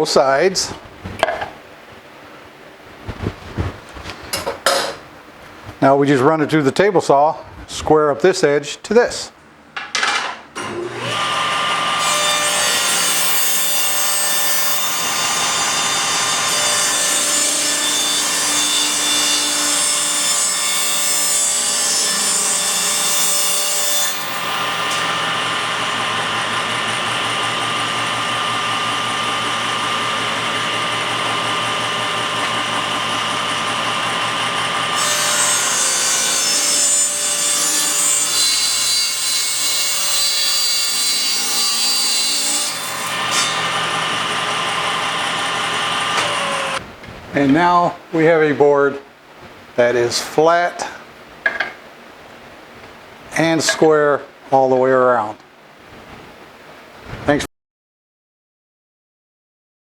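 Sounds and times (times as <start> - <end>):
table saw ripping a board: 10.6 - 26.4, 34.0 - 46.8.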